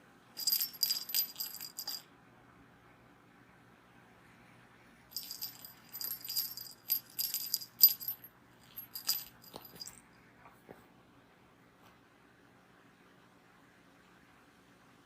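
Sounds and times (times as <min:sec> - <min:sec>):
cat toy jingling and rattling: 0:00.4 - 0:02.0, 0:05.1 - 0:10.0.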